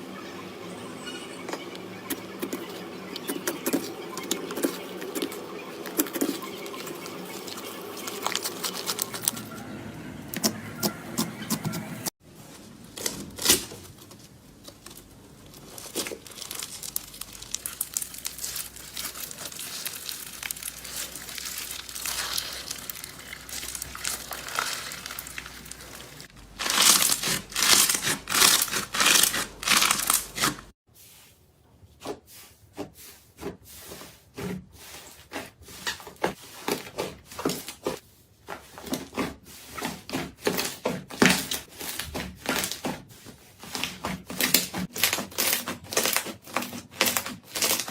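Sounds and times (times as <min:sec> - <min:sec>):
slime crackling and popping: 0:07.5 - 0:09.4, 0:15.4 - 0:30.6.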